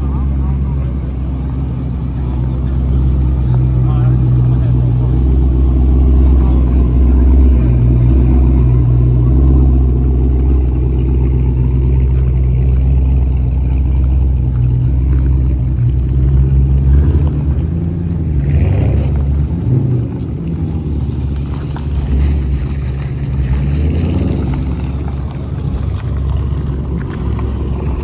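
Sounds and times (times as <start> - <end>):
car engine rumbling: 0.0 - 28.0.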